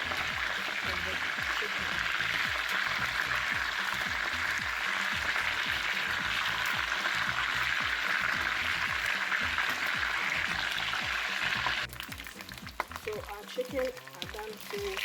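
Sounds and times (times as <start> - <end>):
background music with steady beat: 0.0 - 15.0
chicken frying in oil: 0.0 - 15.0.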